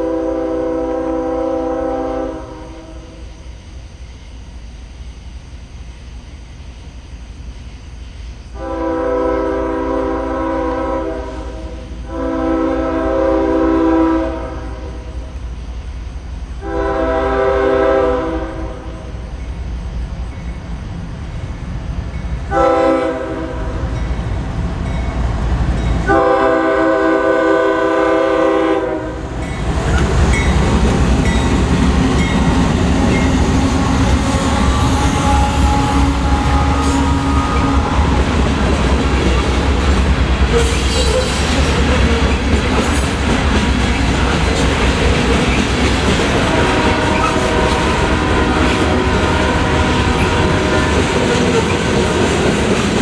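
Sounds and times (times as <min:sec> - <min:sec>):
locomotive air horn blasts: 0:00.0 - 0:03.2, 0:08.6 - 0:15.2, 0:16.6 - 0:19.0, 0:22.5 - 0:23.8, 0:26.1 - 0:29.2, 0:33.0 - 0:43.2, 0:46.2 - 0:52.2
train rumble: 0:00.0 - 0:53.0
train wheel clatter: 0:29.4 - 0:53.0.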